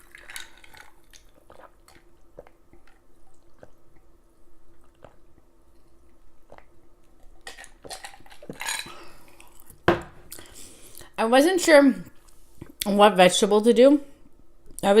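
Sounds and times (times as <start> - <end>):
person chewing: 0.0 - 11.1.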